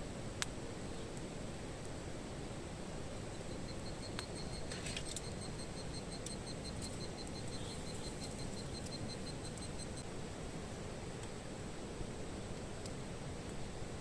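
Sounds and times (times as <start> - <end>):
background hiss: 0.0 - 14.0
insect chirping: 3.2 - 10.1.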